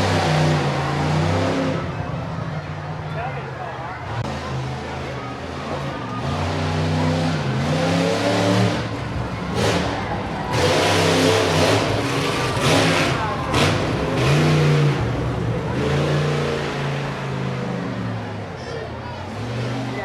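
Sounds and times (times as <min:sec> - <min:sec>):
monster truck engines revving: 0:00.0 - 0:20.0.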